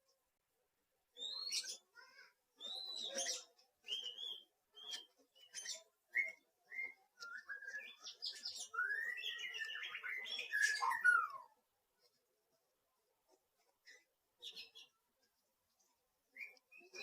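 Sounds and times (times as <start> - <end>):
small bird chirping: 1.1 - 17.0.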